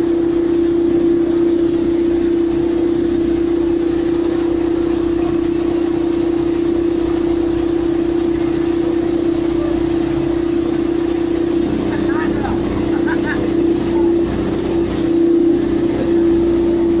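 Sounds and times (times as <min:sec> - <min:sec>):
low engine rumble: 0:00.0 - 0:17.0
pile-driving machinery humming: 0:01.1 - 0:17.0.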